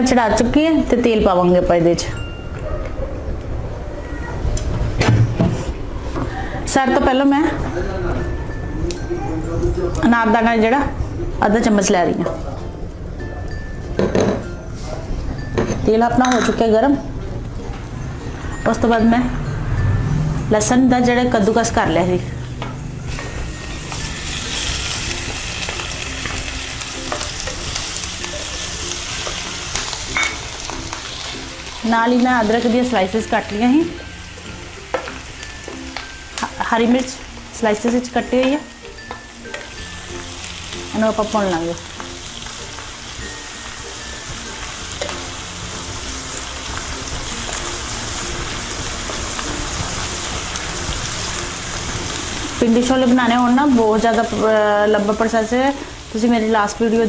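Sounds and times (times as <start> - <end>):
garlic sizzling in hot oil: 21.2 - 57.0.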